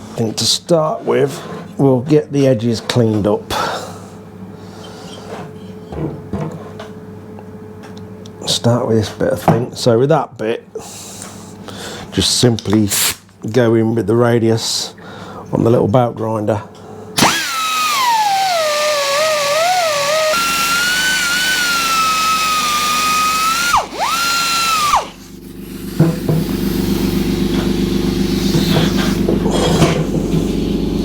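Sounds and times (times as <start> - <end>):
belt grinder whining on metal: 17.2 - 25.2.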